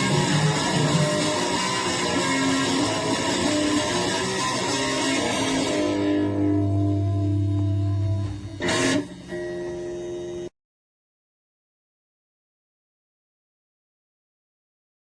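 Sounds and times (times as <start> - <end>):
distorted electric guitar chords: 0.0 - 10.5
brief harsh noise: 6.6 - 10.5.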